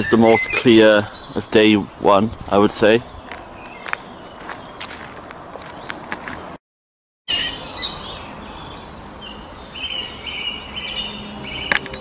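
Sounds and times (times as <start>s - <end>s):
bird trill: 0.0s - 1.5s, 7.3s - 12.0s
woodland birds singing: 0.0s - 6.6s, 7.3s - 12.0s.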